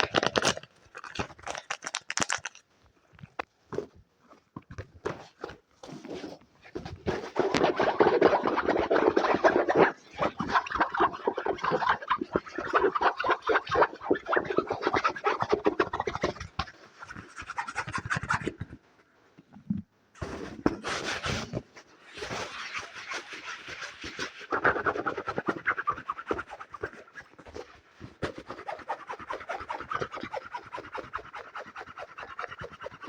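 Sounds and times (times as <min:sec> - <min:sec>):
fast scratching and tapping: 0:06.8 - 0:18.7, 0:22.1 - 0:33.0.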